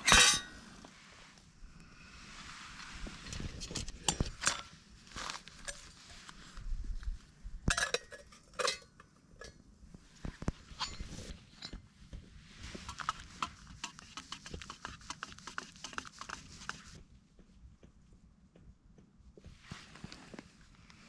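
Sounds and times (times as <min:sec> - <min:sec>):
metal cookware clinking: 0:00.0 - 0:00.6, 0:07.7 - 0:09.6.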